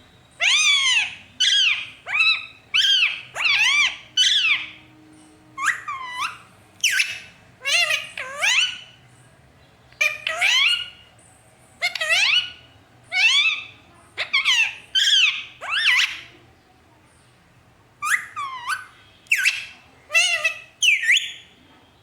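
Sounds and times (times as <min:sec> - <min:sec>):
parrot shrill calls: 0:00.4 - 0:04.9, 0:05.6 - 0:09.0, 0:10.0 - 0:11.0, 0:11.8 - 0:16.3, 0:18.0 - 0:21.5.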